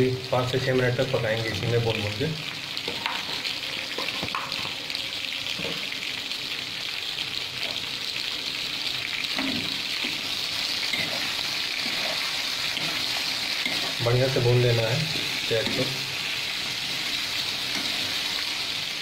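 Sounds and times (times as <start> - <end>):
food sizzling in hot oil: 0.0 - 19.0
spatula stirring: 9.3 - 18.6.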